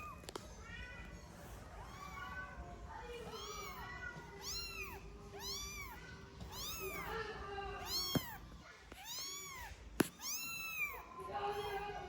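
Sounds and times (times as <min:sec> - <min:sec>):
kitten mewing: 0:07.8 - 0:11.7.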